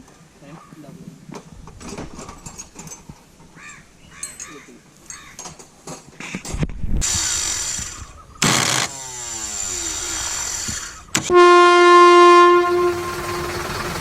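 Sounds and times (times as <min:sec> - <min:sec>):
noisy mechanical sound: 0:07.0 - 0:11.3
loud horn blast: 0:11.3 - 0:13.7.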